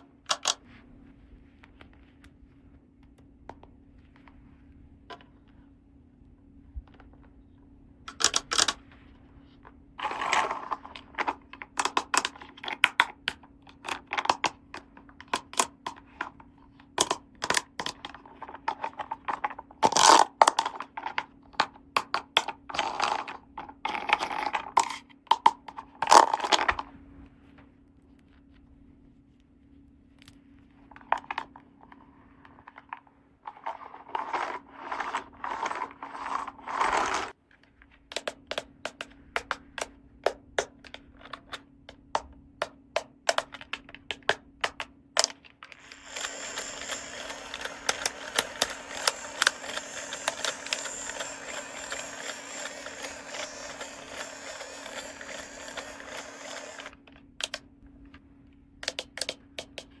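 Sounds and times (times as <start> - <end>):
plastic toy pieces clicking: 0.3 - 0.6, 8.1 - 8.8, 10.0 - 16.4, 17.0 - 26.8, 38.1 - 57.6, 58.8 - 60.0
plastic toy pieces rubbing: 10.0 - 26.9, 31.0 - 37.4, 43.3 - 57.6.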